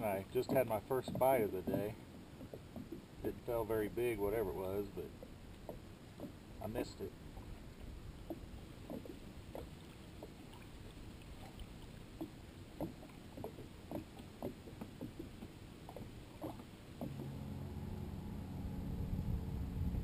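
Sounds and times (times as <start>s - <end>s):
water splashing: 0.0s - 20.0s
motor drone: 17.1s - 20.0s.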